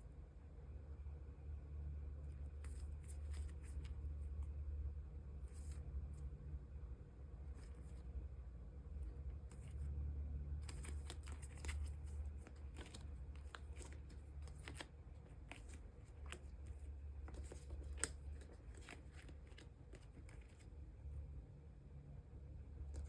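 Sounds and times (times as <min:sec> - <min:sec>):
faint low hum: 0:00.0 - 0:23.0
cards clicking and rustling: 0:10.6 - 0:20.8.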